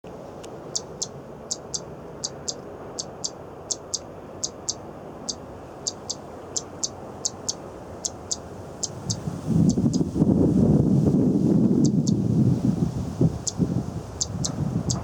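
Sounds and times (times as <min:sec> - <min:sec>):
bird calling sharp high notes: 0:00.7 - 0:10.0.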